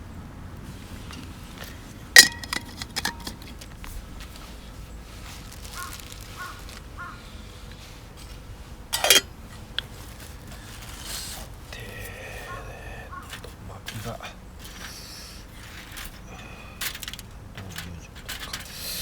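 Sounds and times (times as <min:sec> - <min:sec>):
metal cookware clanking: 0:02.2 - 0:03.6, 0:08.9 - 0:09.4.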